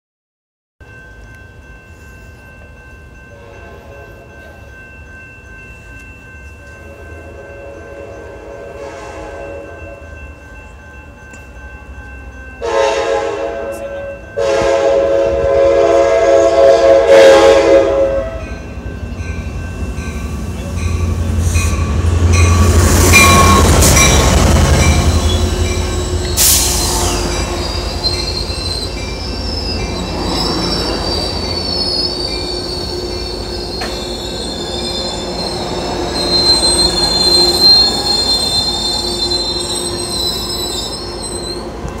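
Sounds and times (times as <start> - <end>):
train rumbling past: 0.8 - 42.0
train horn blasts: 3.4 - 4.2, 6.8 - 10.1, 12.6 - 18.6, 21.5 - 28.8
wheels squealing: 23.0 - 41.7.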